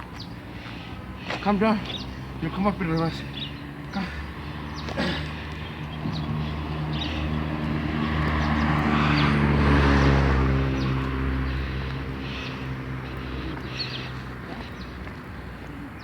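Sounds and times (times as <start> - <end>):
vehicle driving past: 6.0 - 13.8.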